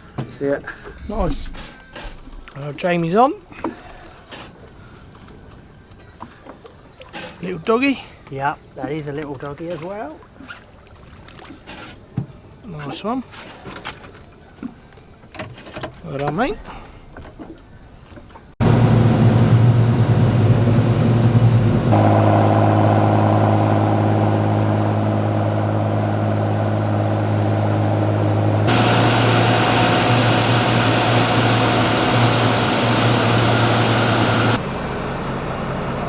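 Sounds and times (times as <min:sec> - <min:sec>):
boat engine humming: 0:13.7 - 0:36.0.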